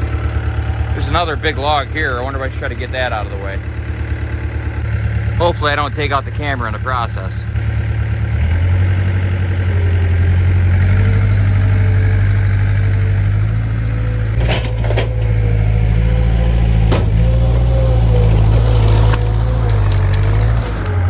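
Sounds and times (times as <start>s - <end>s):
skid steer engine running: 0.0s - 21.0s
sharp knocks: 16.8s - 17.6s.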